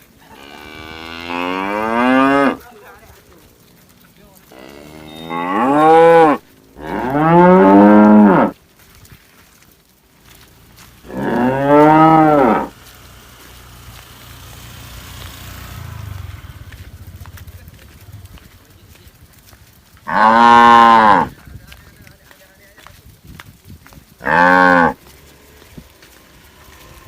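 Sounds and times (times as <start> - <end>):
cattle mooing: 0.3 - 2.7, 4.4 - 8.6, 11.1 - 12.8, 20.0 - 21.3, 24.2 - 25.1.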